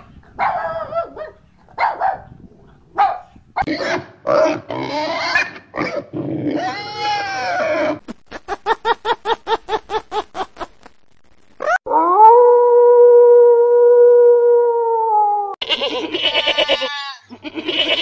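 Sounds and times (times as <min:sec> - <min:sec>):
pig squealing and grunting: 0:03.7 - 0:08.0, 0:15.6 - 0:18.0
wolf howling: 0:11.6 - 0:15.6.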